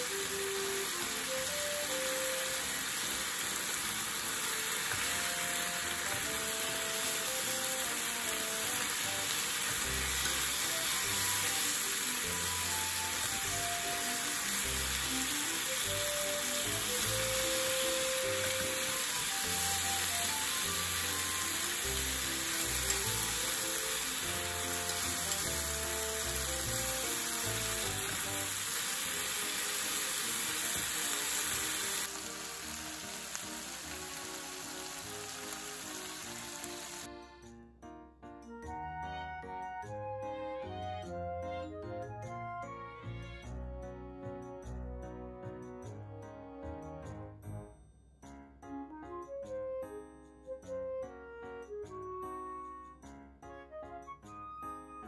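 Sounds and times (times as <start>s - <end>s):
meat sizzling in a frying pan: 0.0s - 37.1s
soft background music: 0.0s - 55.0s.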